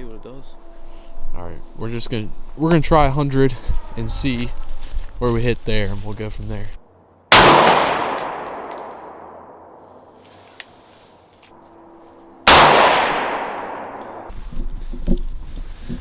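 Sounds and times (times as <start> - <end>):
rifle shots echoing: 7.3 - 9.8, 12.4 - 14.3.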